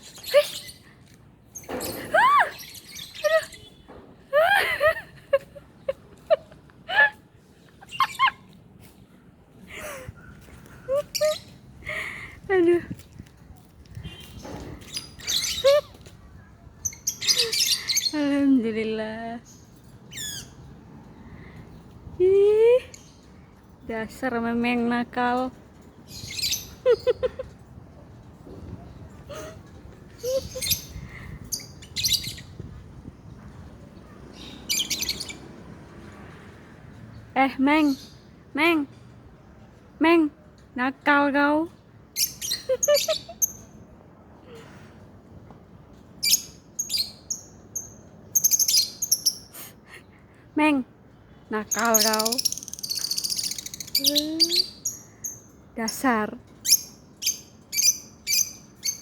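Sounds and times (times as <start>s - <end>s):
lovebird shrill chirps: 51.7s - 55.4s.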